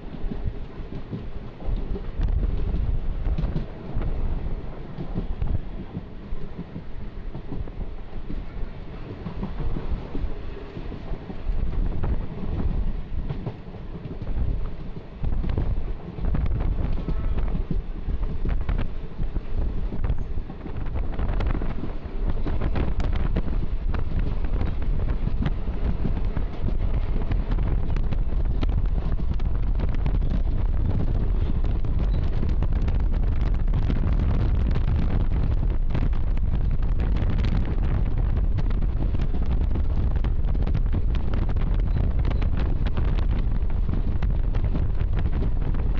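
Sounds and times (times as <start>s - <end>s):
train rumbling on rails: 0.0s - 45.9s
wind buffeting microphone: 0.0s - 45.9s.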